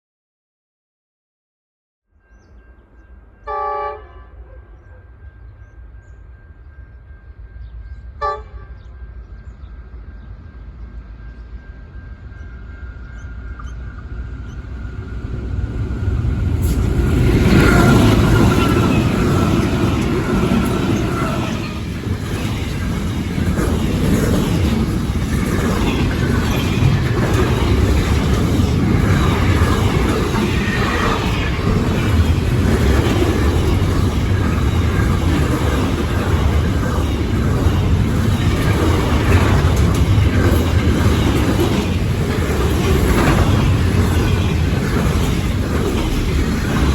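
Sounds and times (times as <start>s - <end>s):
locomotive horn: 3.4s - 5.0s, 8.2s - 8.8s
locomotive engine rumble: 9.1s - 46.9s
wagons rolling past: 14.4s - 46.9s.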